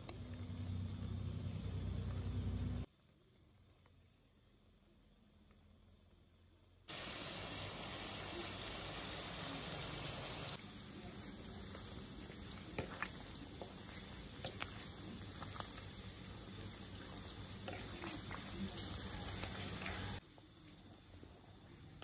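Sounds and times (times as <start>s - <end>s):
pork fat sizzling in a pan: 6.9s - 22.0s.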